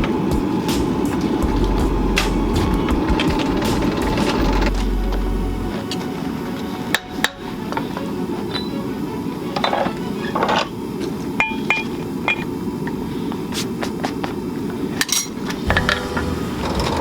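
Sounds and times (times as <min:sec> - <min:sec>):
hammer striking steel: 0:00.0 - 0:05.6, 0:11.4 - 0:12.4, 0:15.4 - 0:17.0
steady low noise: 0:00.0 - 0:09.5, 0:15.4 - 0:17.0.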